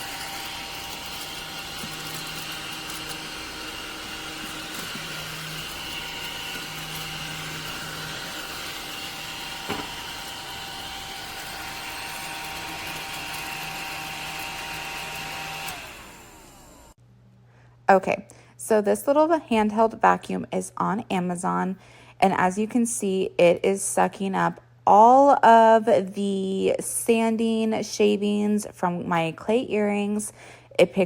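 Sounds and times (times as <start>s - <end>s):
vacuum cleaner motor whine: 0.0s - 17.0s.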